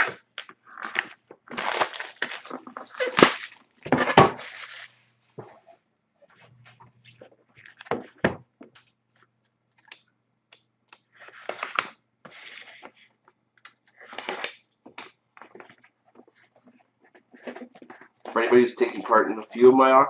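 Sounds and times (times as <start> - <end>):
packaging crinkling: 0.0 - 5.0.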